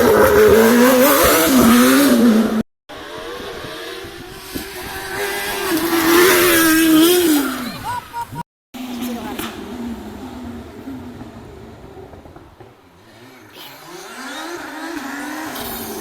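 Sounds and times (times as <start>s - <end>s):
rally car passing: 0.0s - 8.0s, 8.8s - 16.0s
rally car engine revving: 0.0s - 16.0s.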